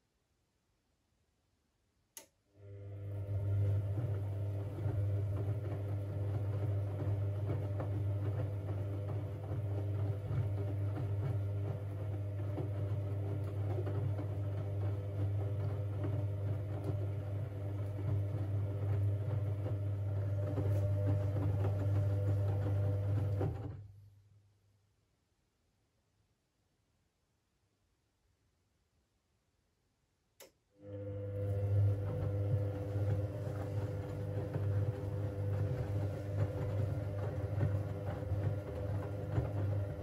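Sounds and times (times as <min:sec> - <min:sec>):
washing machine running: 0:02.6 - 0:23.9, 0:30.8 - 0:40.0.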